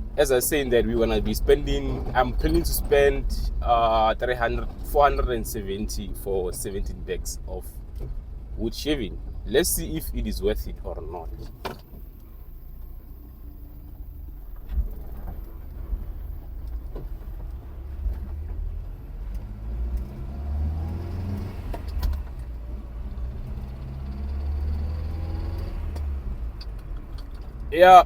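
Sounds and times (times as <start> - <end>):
car engine accelerating: 0.0 - 28.0
clicks and knocks in cab: 11.3 - 12.0.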